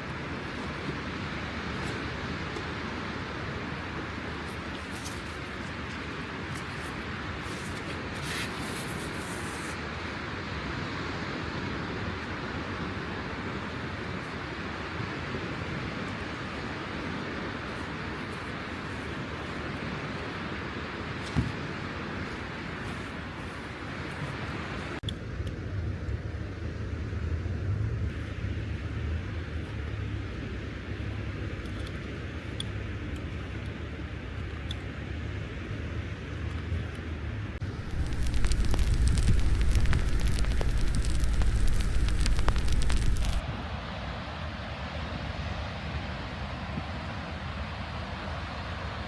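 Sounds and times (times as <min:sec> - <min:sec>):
rainy seashore: 0:00.0 - 0:25.0, 0:37.5 - 0:49.0
wind: 0:00.0 - 0:49.0
rain: 0:36.6 - 0:45.0
deep rumbling noise: 0:37.6 - 0:43.4.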